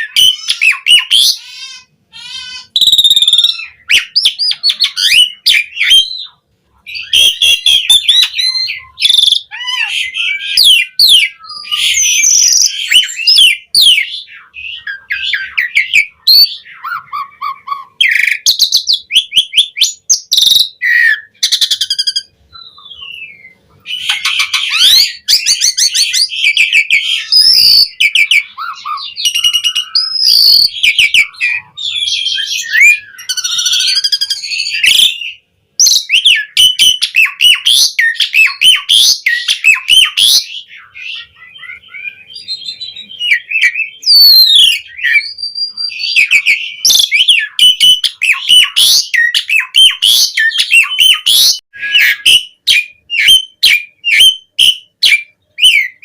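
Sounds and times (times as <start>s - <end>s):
starling singing trills and whistles: 0.0s - 56.0s.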